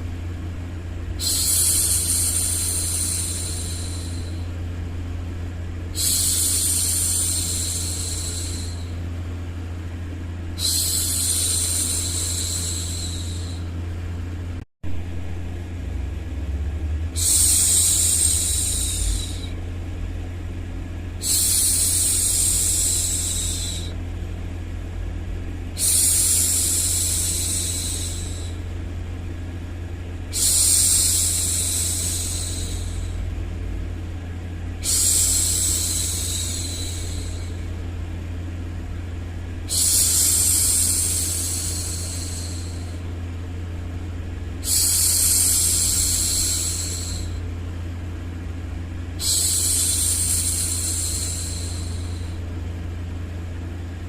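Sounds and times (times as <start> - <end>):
steady low hum: 0.0 - 54.0
woman shushing: 1.2 - 4.5, 6.0 - 9.0, 10.6 - 13.7, 17.2 - 19.6, 25.8 - 28.6, 30.3 - 33.2.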